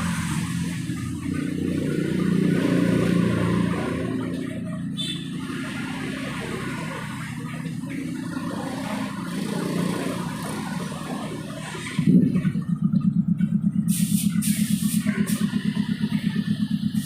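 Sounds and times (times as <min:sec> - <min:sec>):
low engine drone: 0:00.0 - 0:17.0
motorcycle engine running: 0:00.0 - 0:17.0
short hiss: 0:13.9 - 0:15.1.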